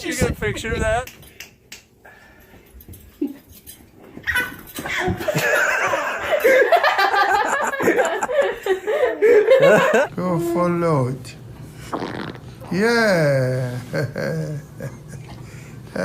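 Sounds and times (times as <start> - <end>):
baby laughing: 4.2 - 5.7.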